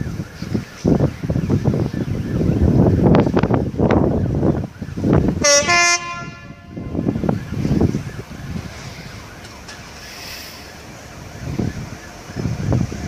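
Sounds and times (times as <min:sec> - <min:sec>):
wind buffeting microphone: 0:00.0 - 0:13.0
train horn: 0:05.4 - 0:07.1.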